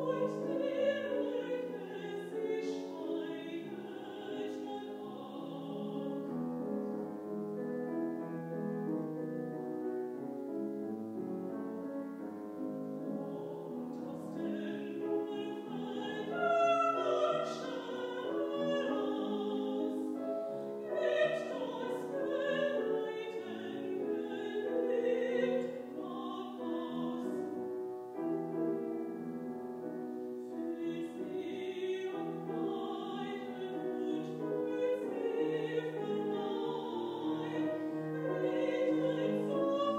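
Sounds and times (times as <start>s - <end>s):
woman singing operatically: 0.0s - 6.3s, 13.1s - 20.2s, 20.8s - 27.6s, 30.6s - 39.9s
piano accompaniment: 0.0s - 39.9s.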